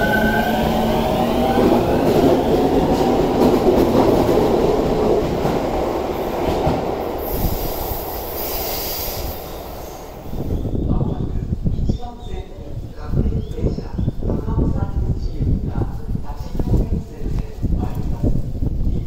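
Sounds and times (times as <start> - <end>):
wheels rumbling on rail: 0.0 - 12.0
high hiss: 7.1 - 10.6.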